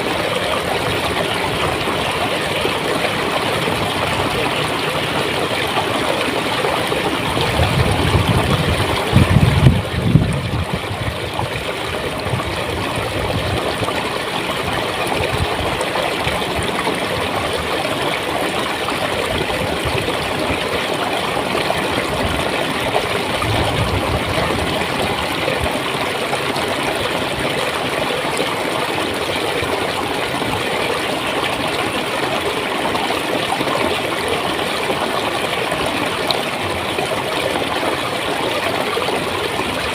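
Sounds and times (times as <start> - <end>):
stream flowing and gurgling: 0.0 - 39.9
low rumbles: 22.8 - 26.0.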